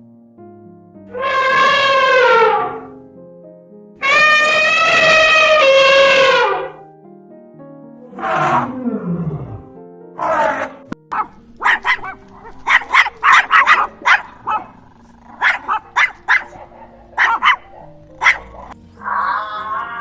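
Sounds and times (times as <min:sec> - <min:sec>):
background music: 0:00.0 - 0:20.0
big cat roaring: 0:01.2 - 0:02.9, 0:04.0 - 0:06.8, 0:08.0 - 0:10.9, 0:16.5 - 0:20.0
short sharp barks: 0:17.2 - 0:18.6.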